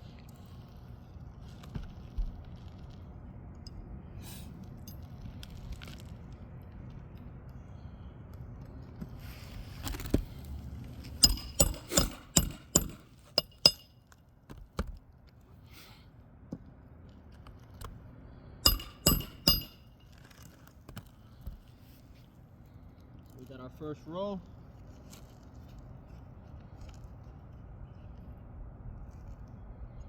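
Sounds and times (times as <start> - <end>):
hammer striking nails: 11.2 - 13.9, 18.6 - 20.0.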